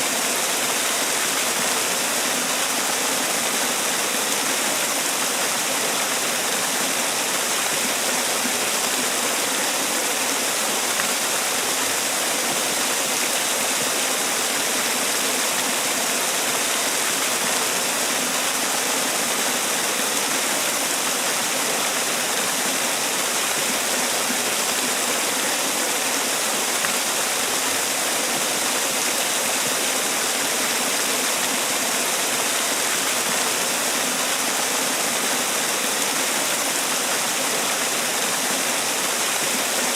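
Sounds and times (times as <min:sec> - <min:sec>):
waterfall pouring and splashing: 0:00.0 - 0:39.9.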